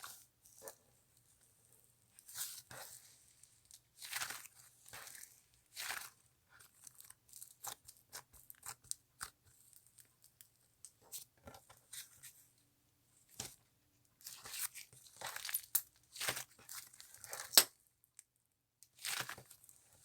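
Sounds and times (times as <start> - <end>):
slime clicking and crackling: 17.4 - 17.7.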